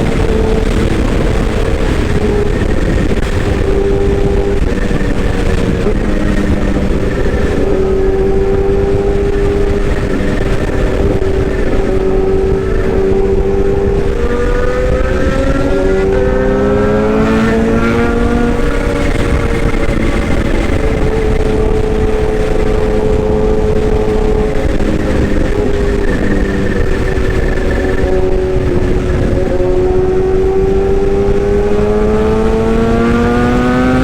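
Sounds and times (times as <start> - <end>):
excavator engine running: 0.0 - 34.0.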